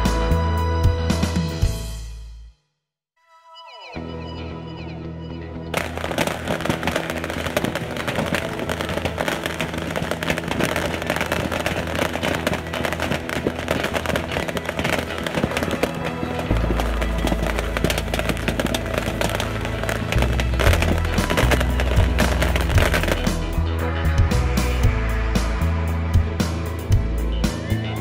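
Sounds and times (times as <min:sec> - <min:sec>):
background music: 0:00.0 - 0:02.5, 0:03.2 - 0:28.0
bottle rockets crackling: 0:05.8 - 0:23.6.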